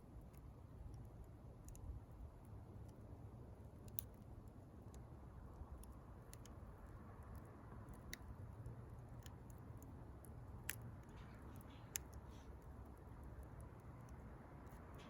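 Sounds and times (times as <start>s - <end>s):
wood fire crackling: 5.8s - 15.0s.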